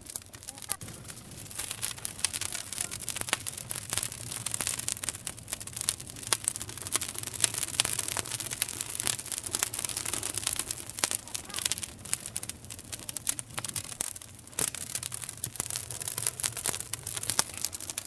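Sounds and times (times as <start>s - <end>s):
campfire crackling and popping: 0.0s - 18.0s
fire hissing: 0.0s - 18.0s.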